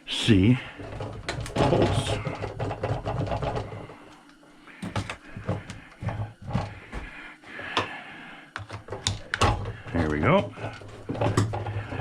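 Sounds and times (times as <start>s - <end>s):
metal parts clicking and knocking: 0.8s - 4.2s, 4.8s - 6.8s, 8.6s - 12.0s.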